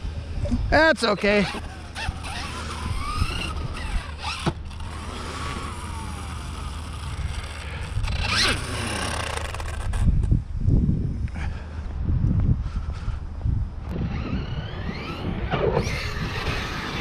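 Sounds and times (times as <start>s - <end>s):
wind rumbling on microphone: 0.0s - 17.0s
electric toy truck motor whining: 1.4s - 10.1s, 13.9s - 17.0s.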